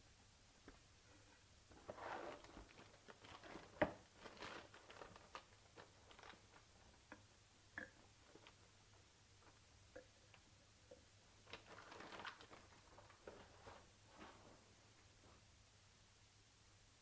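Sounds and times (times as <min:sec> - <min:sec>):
rustling of small objects: 0:01.1 - 0:07.1, 0:11.4 - 0:15.4.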